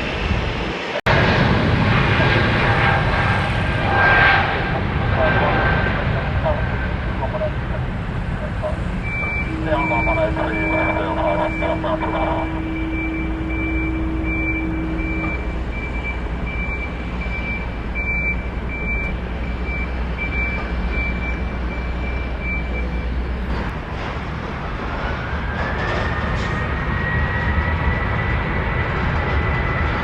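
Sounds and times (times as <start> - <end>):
jet engines rumbling: 0.0 - 30.0
rising engine whine: 0.0 - 30.0
short high beeps: 9.1 - 19.1.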